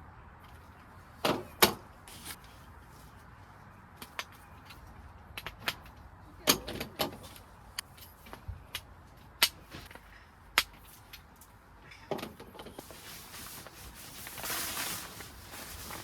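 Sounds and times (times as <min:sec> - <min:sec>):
rustling noise: 0:00.4 - 0:05.1, 0:12.7 - 0:16.0.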